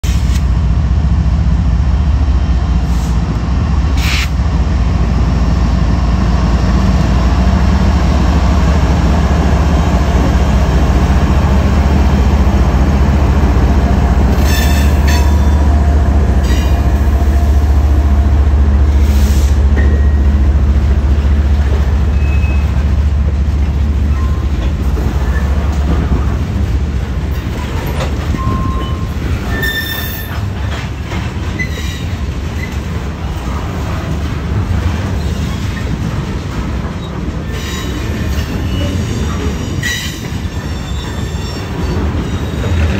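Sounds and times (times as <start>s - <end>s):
freight train rumbling past: 0.0s - 42.9s
train cars clanking: 2.6s - 42.9s
train wheels squealing: 14.4s - 15.6s, 22.1s - 22.8s, 28.3s - 30.4s, 31.6s - 32.8s, 37.4s - 42.8s.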